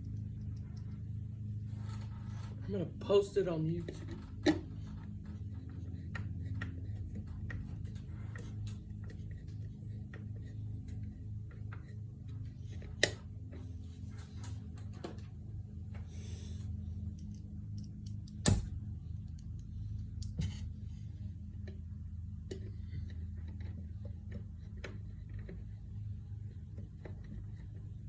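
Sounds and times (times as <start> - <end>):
steady low hum: 0.0 - 28.0
light clicks and taps: 3.8 - 15.3.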